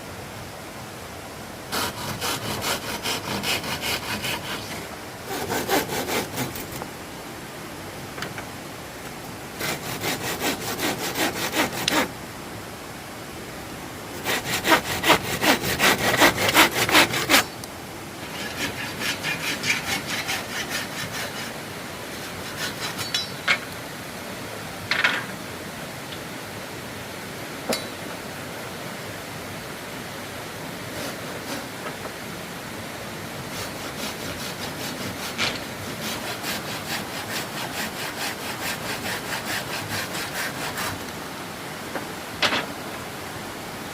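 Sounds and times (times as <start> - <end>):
hand saw cutting wood: 1.7 - 6.8, 9.6 - 12.1, 14.2 - 17.5, 18.2 - 23.3, 30.9 - 31.8, 33.5 - 41.1.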